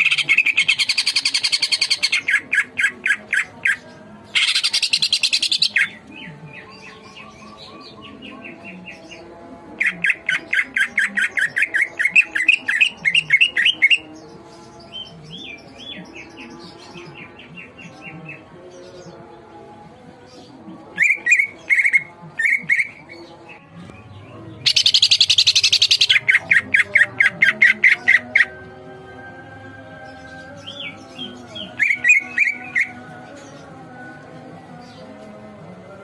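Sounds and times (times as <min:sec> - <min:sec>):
bird chirping and trilling: 0:00.0 - 0:09.2, 0:09.8 - 0:14.2, 0:20.9 - 0:28.7, 0:30.0 - 0:33.7.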